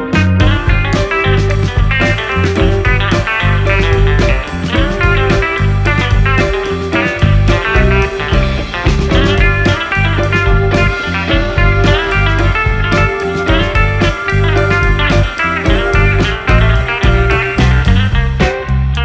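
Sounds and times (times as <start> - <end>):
bluesy rock guitar instrumental: 0.0 - 19.0.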